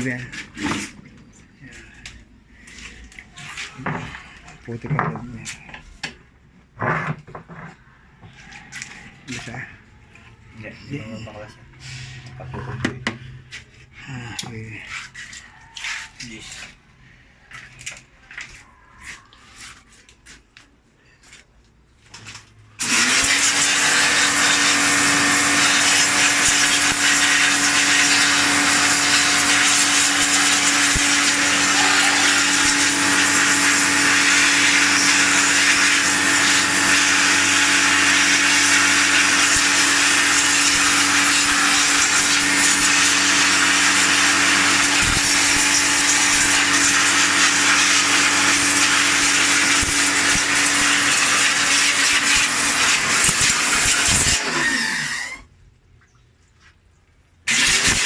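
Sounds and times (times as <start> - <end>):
electric machine running: 22.8 - 55.4, 57.5 - 58.0.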